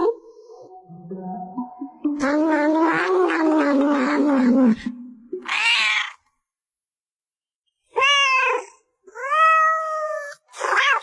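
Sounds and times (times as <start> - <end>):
cat harsh cry: 5.4 - 6.2, 7.9 - 11.0
cat meowing: 5.4 - 6.2.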